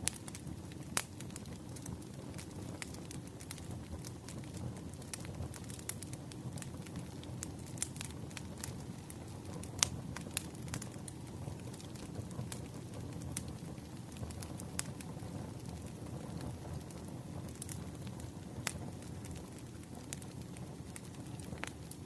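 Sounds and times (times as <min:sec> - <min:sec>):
low rumble of burning logs: 0:00.0 - 0:22.0
wood fire crackling: 0:00.0 - 0:22.0.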